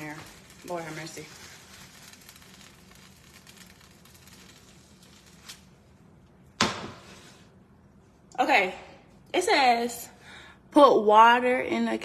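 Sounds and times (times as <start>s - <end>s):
food sizzling in a pan: 0.0s - 5.5s.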